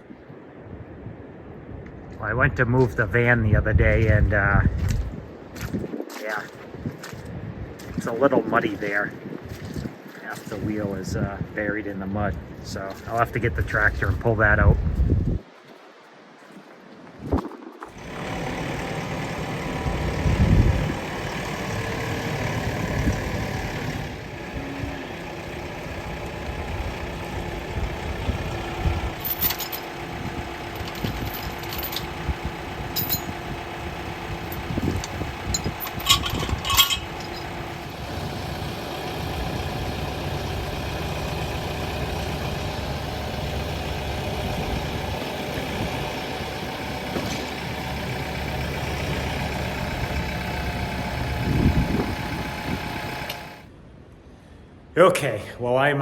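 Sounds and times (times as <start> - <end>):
tractor engine running: 17.8 - 53.7
metallic clinks and clanks: 29.0 - 37.7.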